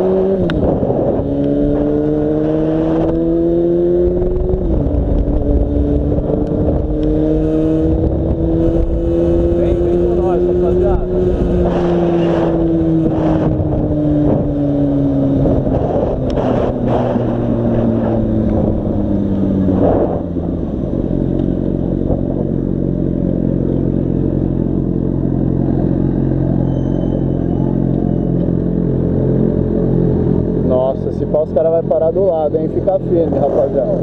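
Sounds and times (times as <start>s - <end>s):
wind buffeting microphone: 0.0s - 22.6s.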